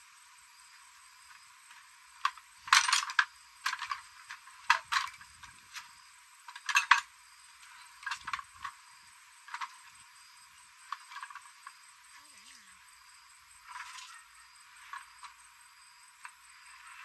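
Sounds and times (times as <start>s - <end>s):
metal parts clinking: 2.2s - 5.9s, 6.5s - 7.1s, 8.0s - 8.8s.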